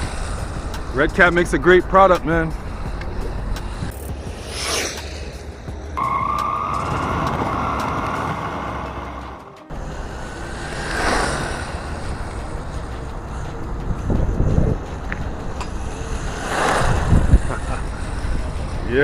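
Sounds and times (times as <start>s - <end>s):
tyre and wind rumble: 6.6s - 19.0s.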